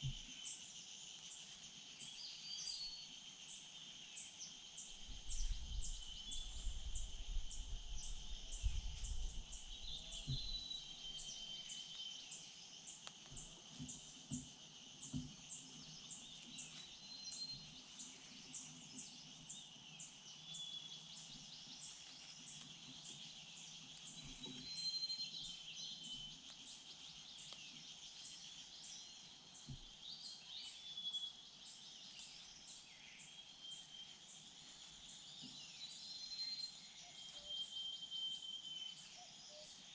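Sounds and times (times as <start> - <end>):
bird chirps: 0.0 - 39.9
insect drone: 0.0 - 39.9.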